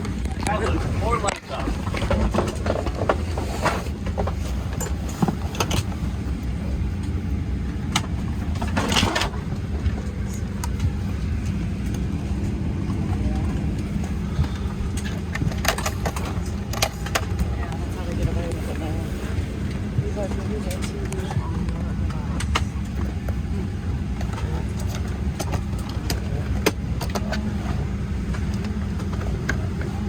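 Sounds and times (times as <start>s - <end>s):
air-conditioning hum: 0.0s - 30.0s
clicks and knocks in cabin: 7.8s - 18.6s.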